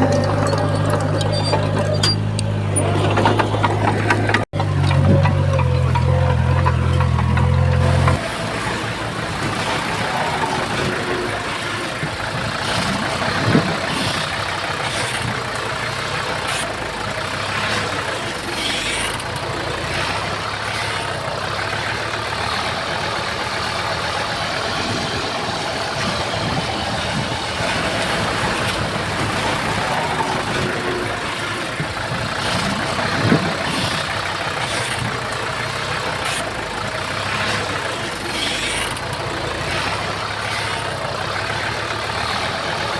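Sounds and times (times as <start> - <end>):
earthmoving machinery diesel engine: 0.0 - 42.9.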